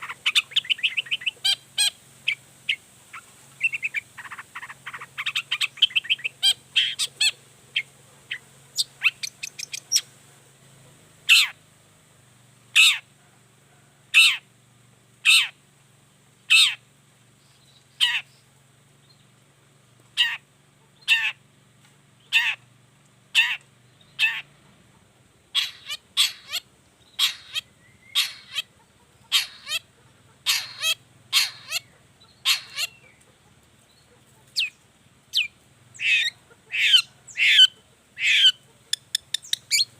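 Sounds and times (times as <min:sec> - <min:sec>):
bird giving harsh rasping calls: 0:00.0 - 0:10.1, 0:11.3 - 0:11.6, 0:12.8 - 0:13.0, 0:14.1 - 0:14.5, 0:15.2 - 0:15.6, 0:16.5 - 0:16.8, 0:18.0 - 0:18.3, 0:20.2 - 0:20.4, 0:21.0 - 0:21.4, 0:22.2 - 0:22.6, 0:23.3 - 0:23.6, 0:24.2 - 0:24.6, 0:25.5 - 0:33.1, 0:34.4 - 0:39.9.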